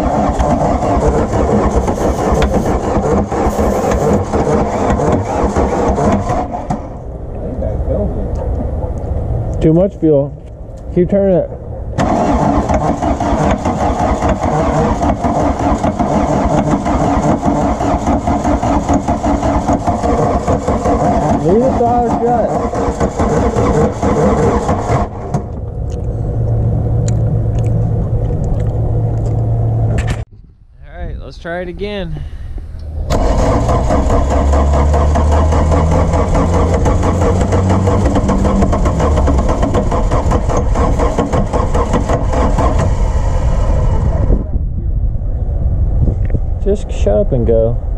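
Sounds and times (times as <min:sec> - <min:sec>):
starter motor cranking engine: 0:00.0 - 0:07.0, 0:12.0 - 0:25.6, 0:33.0 - 0:43.1.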